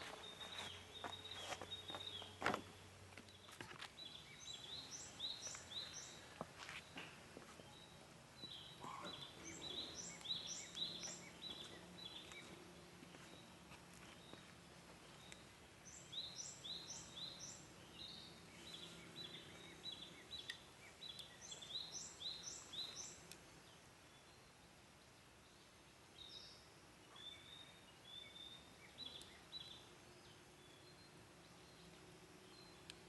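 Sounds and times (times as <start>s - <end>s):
bird singing: 0.0s - 33.0s
faint outdoor hiss: 0.0s - 33.0s
small wood fire crackling: 20.4s - 23.5s.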